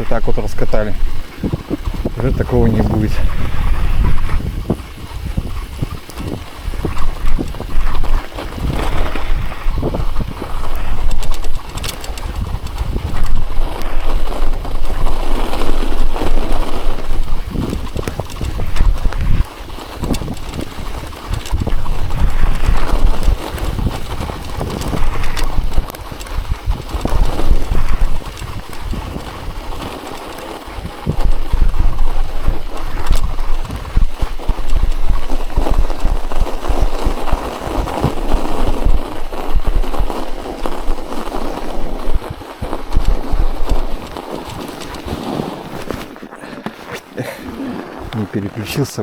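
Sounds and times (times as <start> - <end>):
bicycle tyres crunching snow: 0.0 - 49.0.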